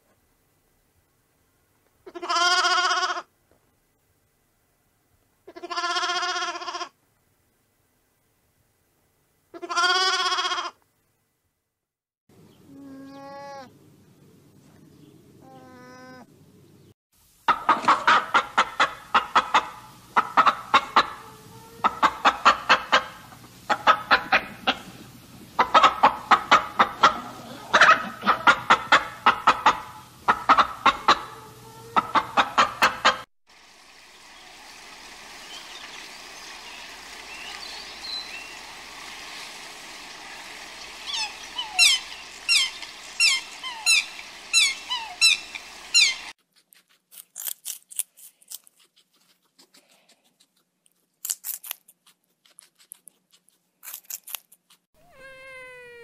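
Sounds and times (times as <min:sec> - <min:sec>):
steady hiss: 0:17.2 - 0:32.5, 0:33.5 - 0:46.4
chickens clucking: 0:17.5 - 0:33.3, 0:39.7 - 0:46.3
waterfowl honking calls: 0:25.6 - 0:33.3, 0:40.0 - 0:46.3.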